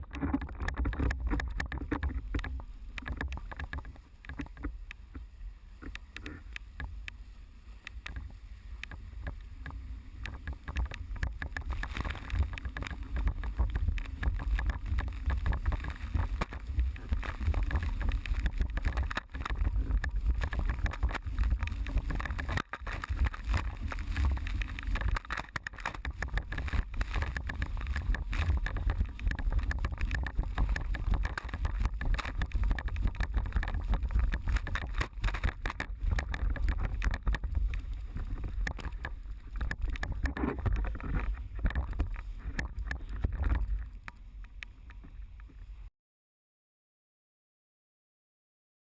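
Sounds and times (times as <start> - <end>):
water rushing and splashing: 0.0 - 44.2
wind buffeting microphone: 8.0 - 44.1.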